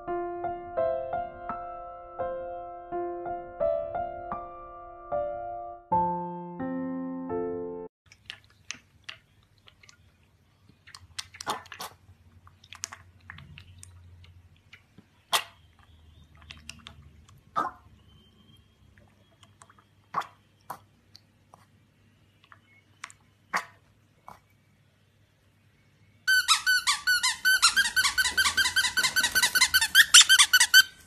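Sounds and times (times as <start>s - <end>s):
piglet slurping milk: 8.1s - 18.1s, 18.9s - 21.8s.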